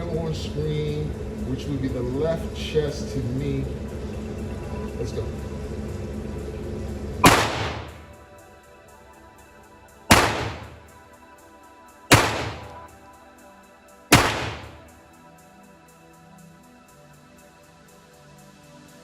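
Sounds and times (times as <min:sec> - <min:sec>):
pistol shots with echo: 0:07.2 - 0:08.2, 0:10.1 - 0:10.9, 0:12.1 - 0:12.9, 0:14.1 - 0:14.9.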